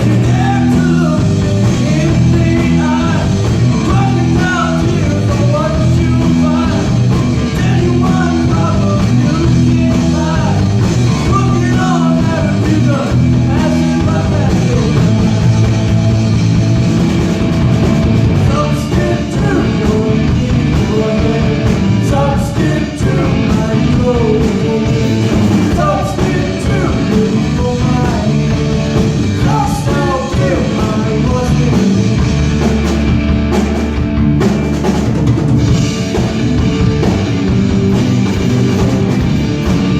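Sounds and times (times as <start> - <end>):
person singing: 0.0 - 16.2, 18.3 - 32.7
bass line: 0.0 - 39.9
guitar: 0.0 - 39.9
rock music: 0.0 - 39.9.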